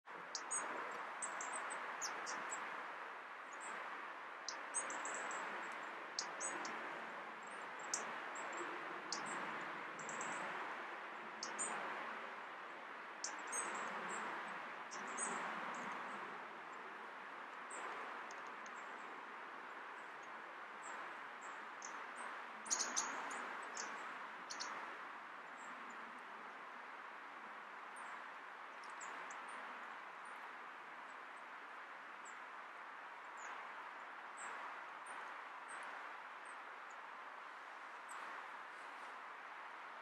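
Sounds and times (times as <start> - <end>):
thin high bird calls: 22.7 - 24.8.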